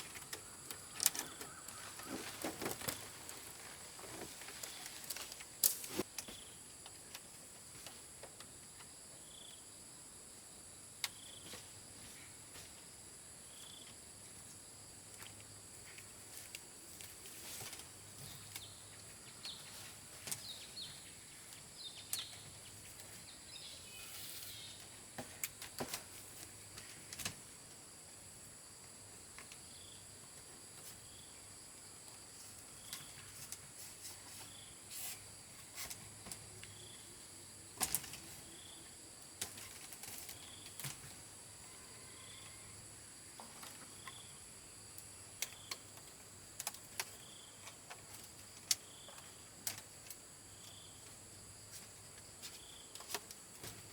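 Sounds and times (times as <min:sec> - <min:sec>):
insects trilling: 0:00.0 - 0:07.0, 0:18.1 - 0:53.9.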